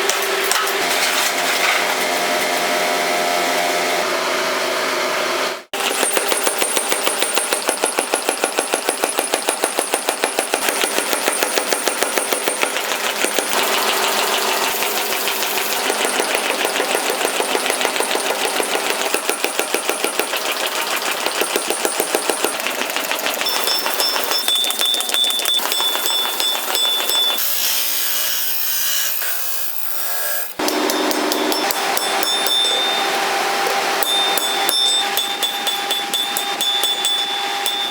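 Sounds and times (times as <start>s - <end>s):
power hammer pounding steel: 5.8s - 28.1s, 30.5s - 37.9s.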